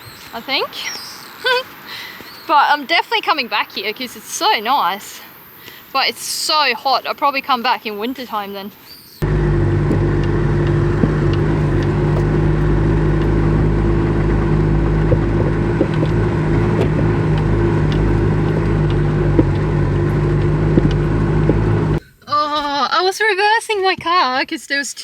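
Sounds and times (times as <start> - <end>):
faint clicks and rattles: 9.2 - 22.0
truck engine running: 9.2 - 22.0.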